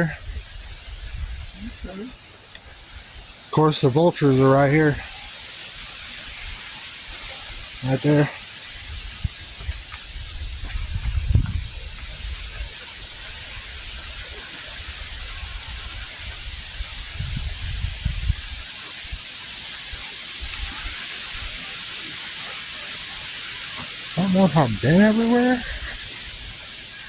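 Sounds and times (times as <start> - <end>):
rain hissing: 0.0 - 27.0
low rumbles on microphone: 10.2 - 12.5.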